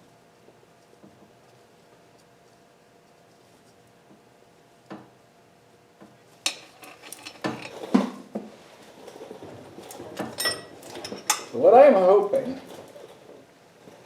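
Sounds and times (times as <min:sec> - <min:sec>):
metal tools clanking: 0:06.5 - 0:08.0, 0:09.8 - 0:11.6.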